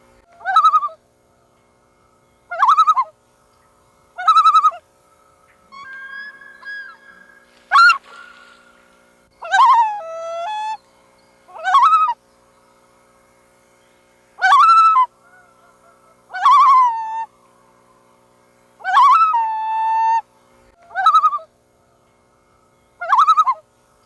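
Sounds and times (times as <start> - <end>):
faint steady hum: 0.0 - 24.0
loon calls: 0.3 - 1.0, 2.5 - 3.2, 4.2 - 4.8, 5.5 - 10.8, 11.5 - 12.2, 14.4 - 17.3, 18.8 - 21.5, 23.0 - 23.6.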